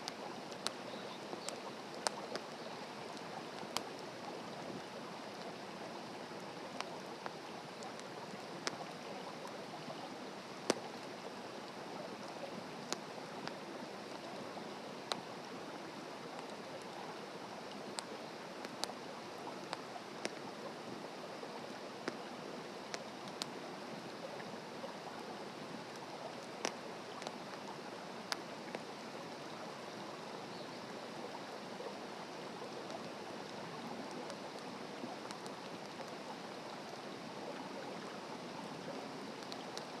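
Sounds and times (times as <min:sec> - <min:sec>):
wood fire crackling: 0:00.0 - 0:17.2, 0:17.8 - 0:20.5, 0:22.9 - 0:23.5, 0:32.5 - 0:36.3.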